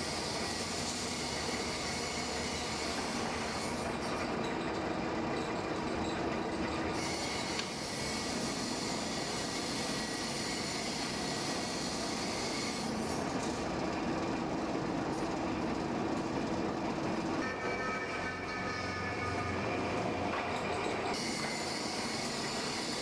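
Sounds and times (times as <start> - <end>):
machinery rumbling: 15.0 - 22.7.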